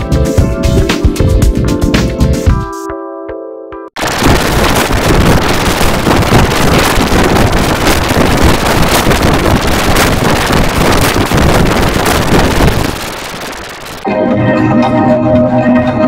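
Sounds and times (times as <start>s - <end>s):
loud rushing noise: 4.0s - 14.1s.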